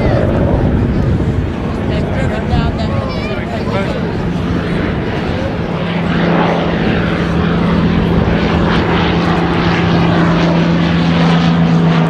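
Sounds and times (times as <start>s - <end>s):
propeller plane engine drone: 0.0s - 12.0s.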